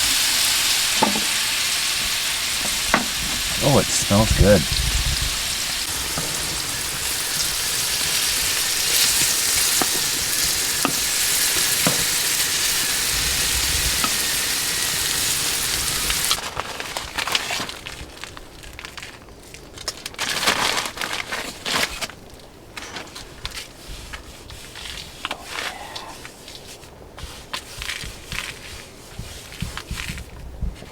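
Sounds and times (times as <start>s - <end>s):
food sizzling in a pan: 0.0s - 16.4s
crackles and small knocks: 27.5s - 30.9s.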